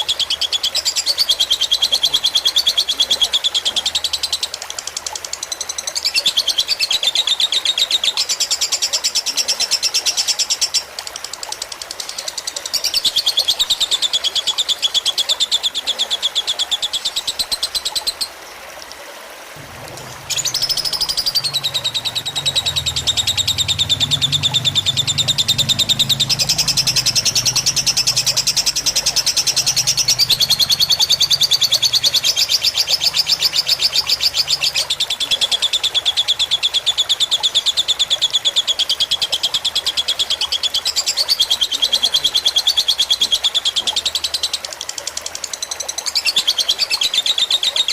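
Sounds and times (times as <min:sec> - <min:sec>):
lovebird rattling trills: 0:20.0 - 0:34.8.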